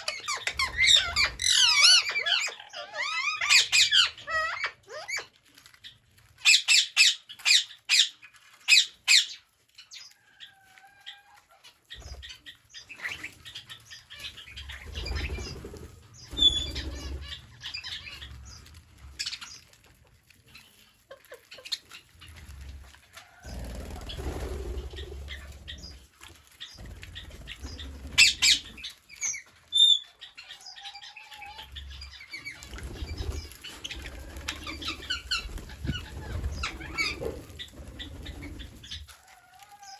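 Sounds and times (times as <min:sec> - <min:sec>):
parrot chirps and squeaks: 0:00.0 - 0:05.3, 0:06.4 - 0:15.6, 0:16.2 - 0:19.8, 0:26.6 - 0:39.1
parrots squawking: 0:00.0 - 0:05.3, 0:16.2 - 0:18.6, 0:26.8 - 0:39.1.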